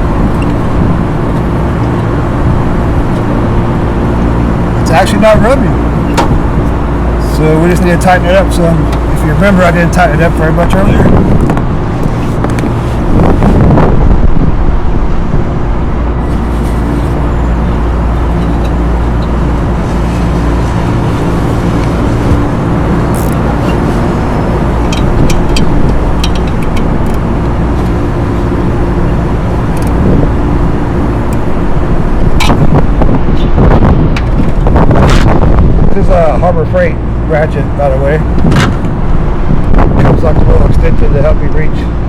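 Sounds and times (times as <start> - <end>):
mechanical drone with low hum: 0.0 - 42.0
hand ratchet clicks: 24.9 - 27.2.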